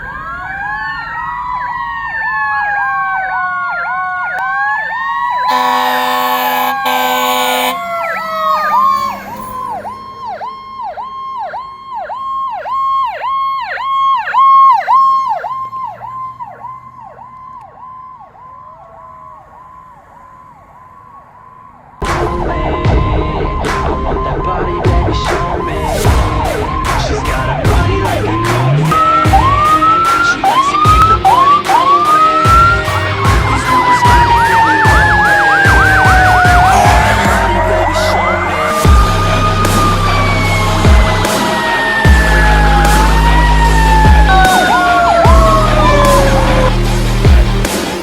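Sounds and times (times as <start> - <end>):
fast-pulsing electronic siren: 0.0 - 22.0, 25.7 - 48.0
wailing electronic sirens: 0.0 - 22.0, 24.1 - 48.0
mechanical siren winding down: 0.2 - 21.8, 28.2 - 47.8
loud horn blasts: 5.4 - 9.5
music: 22.0 - 48.0.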